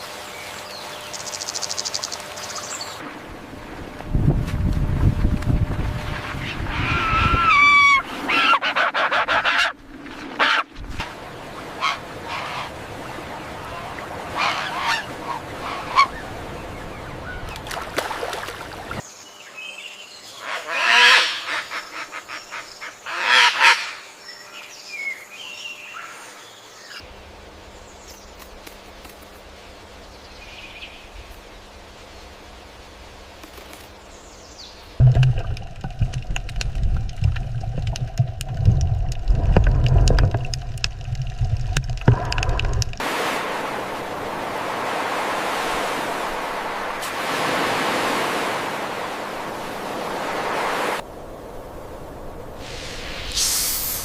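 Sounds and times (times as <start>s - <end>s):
honking bird calls: 11.6s - 12.8s, 13.7s - 17.5s.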